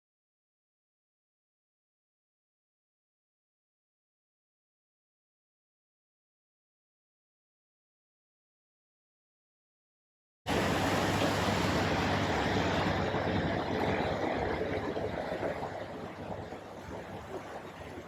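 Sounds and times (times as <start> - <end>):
boat motor humming: 10.5 - 18.0
rushing water: 10.5 - 18.0.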